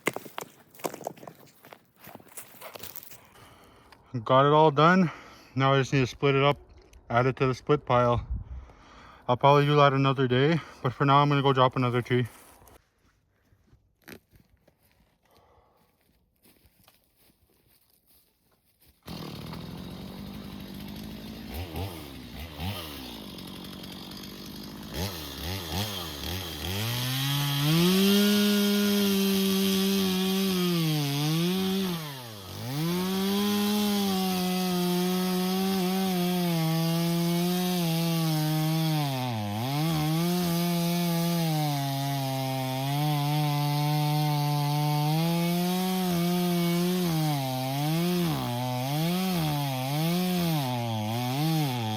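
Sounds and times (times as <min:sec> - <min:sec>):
chainsaw cutting a tree: 0:19.1 - 0:51.9.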